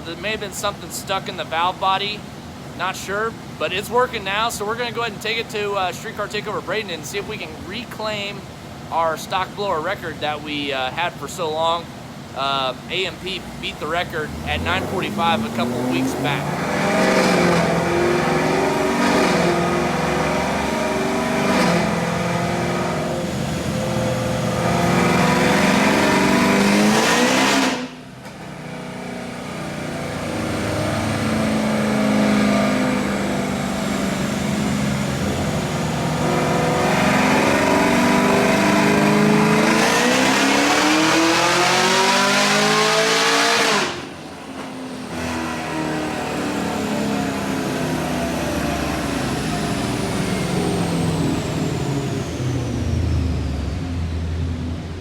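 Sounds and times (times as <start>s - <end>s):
car engine revving hard: 12.1s - 55.0s.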